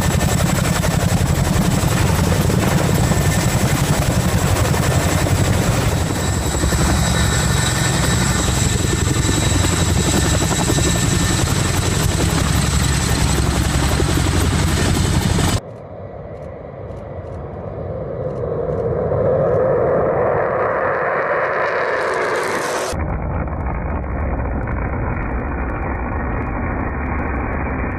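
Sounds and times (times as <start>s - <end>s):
helicopter rotor and turbine: 0.0s - 27.9s
rushing roar: 19.6s - 23.0s.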